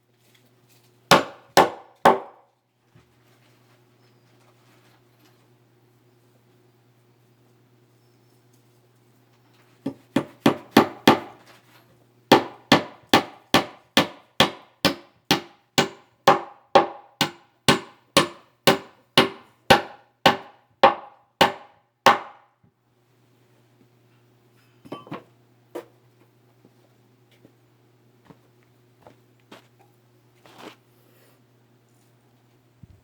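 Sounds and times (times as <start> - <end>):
hammer striking wood: 1.1 - 2.4, 9.9 - 11.4, 12.3 - 22.5.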